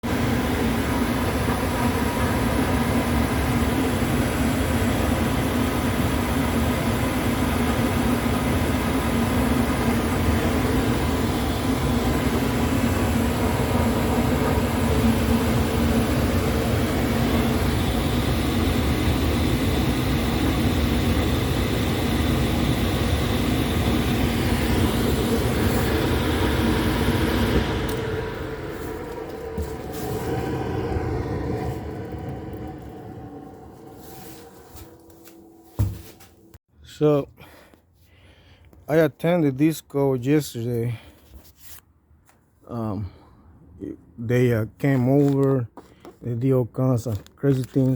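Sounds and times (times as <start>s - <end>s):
mechanical drone: 0.0s - 35.9s.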